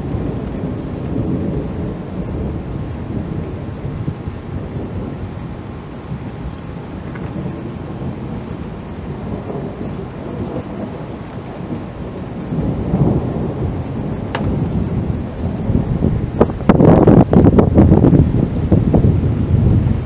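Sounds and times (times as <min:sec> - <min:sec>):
thunder rumbling: 0:00.0 - 0:20.0
sharp thunder crack: 0:11.6 - 0:18.2.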